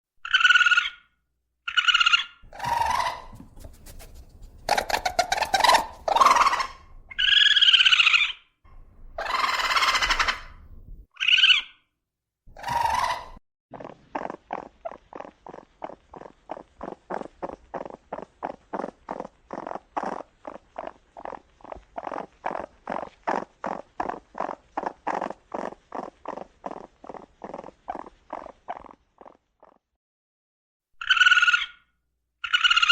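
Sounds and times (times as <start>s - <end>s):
raccoon chirring pulses: 0.2s - 1.0s, 1.7s - 11.8s, 12.5s - 29.8s, 31.0s - 31.8s, 32.4s - 32.9s
raccoon high-pitched cries: 1.7s - 8.4s, 9.2s - 10.6s, 31.0s - 31.8s, 32.4s - 32.9s.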